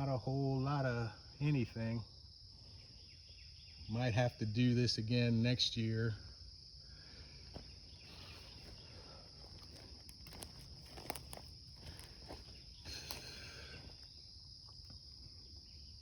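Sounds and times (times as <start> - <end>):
insects chirring: 0.0 - 16.0
footsteps crunching through brush: 7.5 - 15.2.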